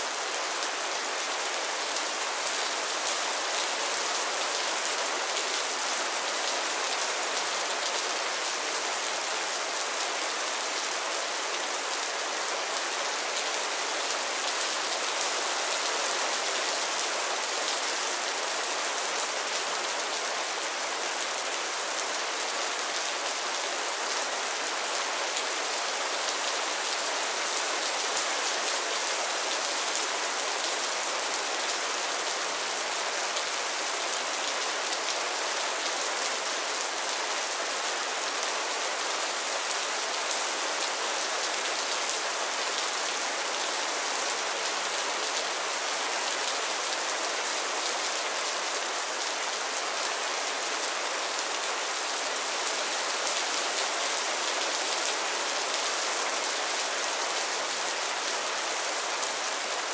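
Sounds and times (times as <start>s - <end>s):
rain falling on a roof: 0.0s - 59.9s.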